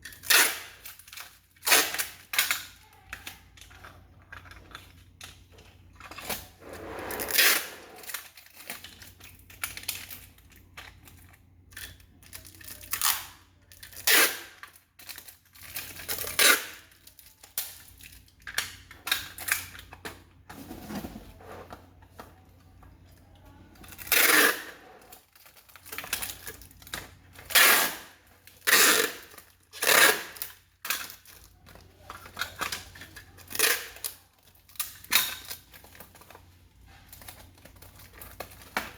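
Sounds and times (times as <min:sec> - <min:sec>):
packaging rustling and tearing: 0:00.0 - 0:11.2, 0:23.8 - 0:38.9.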